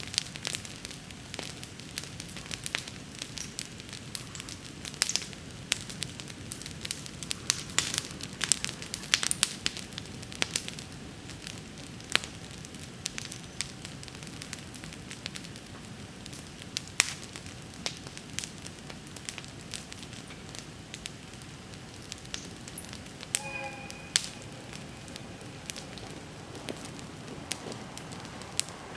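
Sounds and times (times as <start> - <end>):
bonfire crackling and popping: 0.0 - 28.9
low rush of burning: 22.5 - 28.9.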